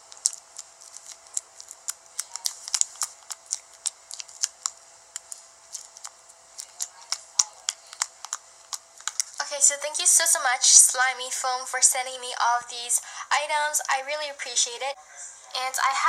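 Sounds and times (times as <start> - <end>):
slime clicking and popping: 0.0 - 9.4.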